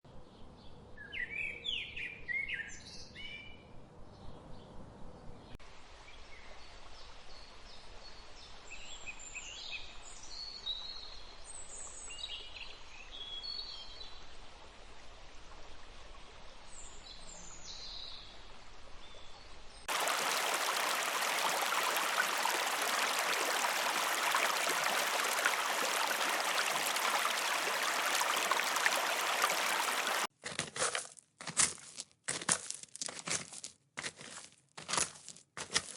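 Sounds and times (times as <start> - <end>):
faint forest background: 0.1 - 35.9
stream rushing: 19.9 - 30.3.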